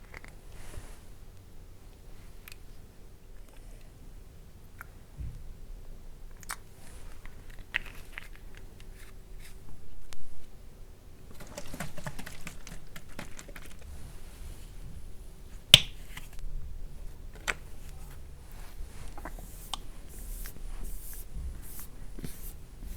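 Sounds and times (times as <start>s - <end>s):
crackly handling noise: 0.0s - 2.7s, 6.3s - 10.2s, 11.3s - 22.9s.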